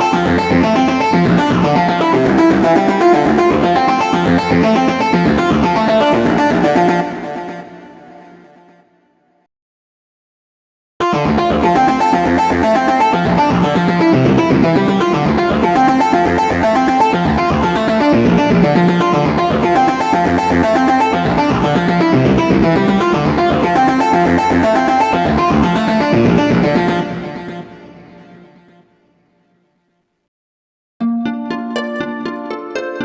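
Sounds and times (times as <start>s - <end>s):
distorted chorused synth chords: 0.0s - 8.4s, 11.0s - 28.5s.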